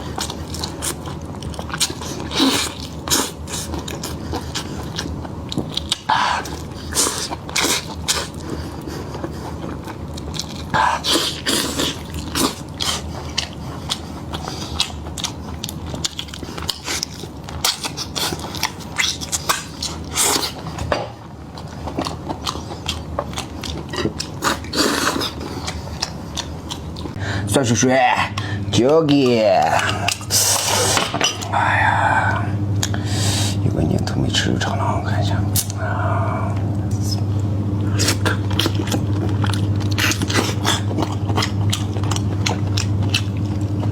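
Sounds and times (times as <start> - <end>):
person chewing food: 0.0 - 27.2, 28.3 - 43.9.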